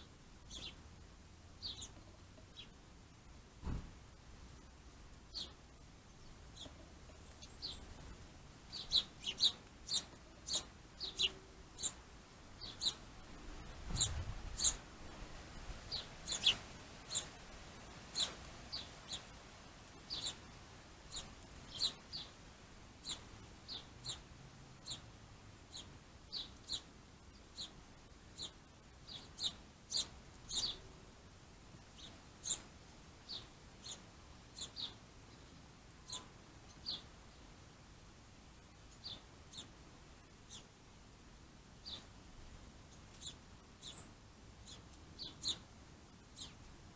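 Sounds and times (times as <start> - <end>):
small bird chirping: 0.4 - 0.8, 1.6 - 2.8, 5.3 - 13.1, 13.7 - 14.8, 15.9 - 17.4, 18.1 - 22.4, 23.0 - 25.1, 25.7 - 31.0, 31.8 - 37.4, 38.8 - 39.8, 40.4 - 40.8, 41.8 - 46.7.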